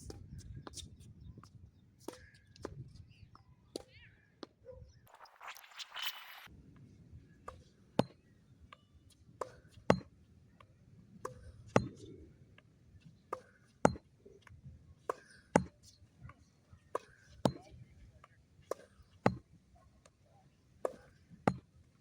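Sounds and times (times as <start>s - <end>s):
tennis ball bouncing on court: 9.4s - 10.1s, 11.2s - 12.1s, 13.3s - 14.1s, 15.1s - 15.8s, 17.0s - 17.8s, 18.7s - 19.5s, 20.8s - 21.7s
tennis ball struck with rackets: 11.2s - 12.0s, 13.3s - 14.1s, 17.0s - 17.8s, 18.7s - 19.5s, 20.8s - 21.7s.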